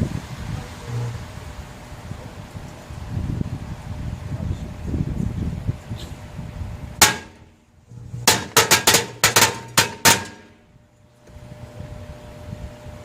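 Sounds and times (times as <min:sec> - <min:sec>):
firecrackers banging: 0:07.0 - 0:10.6.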